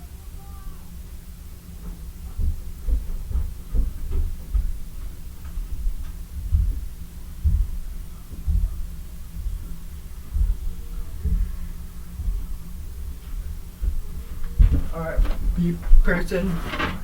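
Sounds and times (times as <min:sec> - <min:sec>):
steady low hum: 0:00.0 - 0:17.0
low thuds and bumps: 0:01.0 - 0:17.0.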